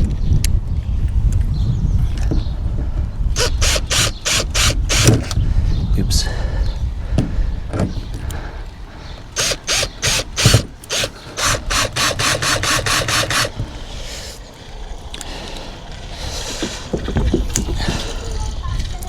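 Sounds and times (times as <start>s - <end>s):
screwdriver rasping strokes: 3.4s - 5.4s, 9.3s - 14.4s.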